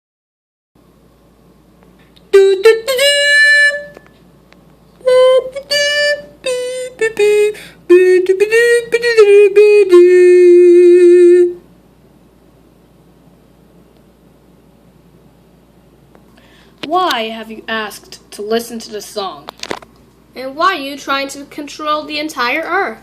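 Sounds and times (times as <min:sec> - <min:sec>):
solo melody: 0:02.3 - 0:04.1, 0:05.0 - 0:11.6.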